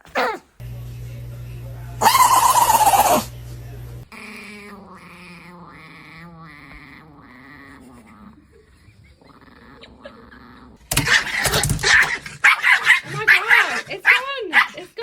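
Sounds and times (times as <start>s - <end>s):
dog whining grumbles: 0.0s - 0.5s, 4.1s - 12.4s
dog barking excitedly: 10.9s - 15.0s.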